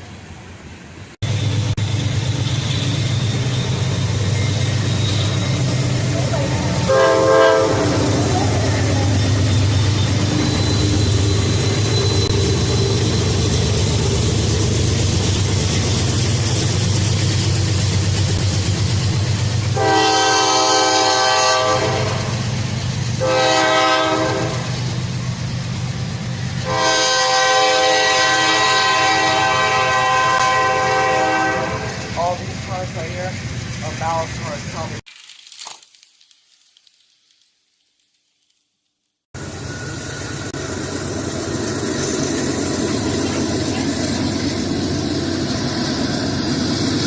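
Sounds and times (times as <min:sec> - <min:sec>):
train rumbling: 0:00.0 - 0:35.0, 0:39.4 - 0:47.0
locomotive horn blasts: 0:06.4 - 0:08.9, 0:19.7 - 0:22.4, 0:23.2 - 0:24.8, 0:26.6 - 0:32.4.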